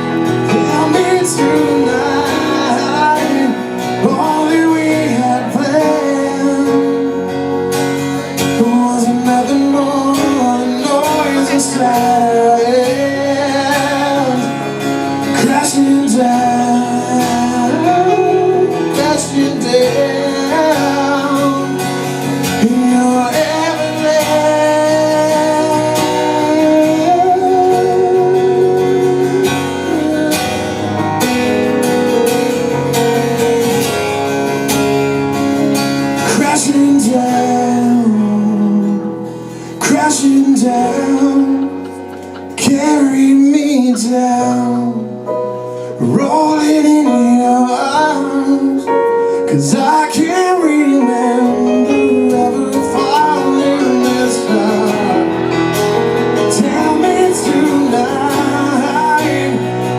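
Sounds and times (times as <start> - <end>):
guitars playing: 0.0 - 59.9
person singing long notes: 46.0 - 59.9.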